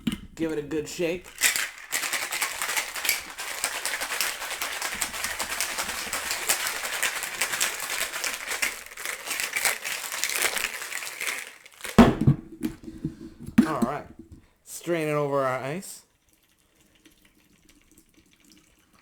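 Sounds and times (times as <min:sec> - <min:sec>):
ice rattling in cocktail shaker: 0:00.7 - 0:12.0.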